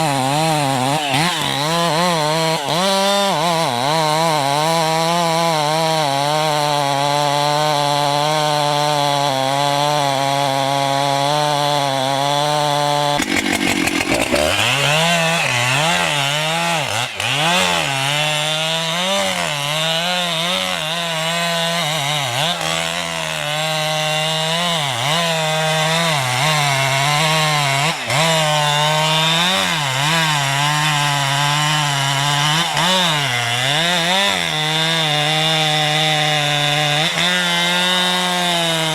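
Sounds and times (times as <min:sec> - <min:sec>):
wood cutter engine running: 0:12.8 - 0:17.6.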